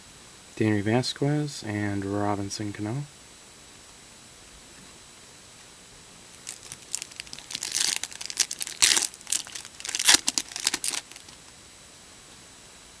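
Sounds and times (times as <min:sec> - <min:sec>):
wrapper crinkling and tearing: 0:06.3 - 0:11.4.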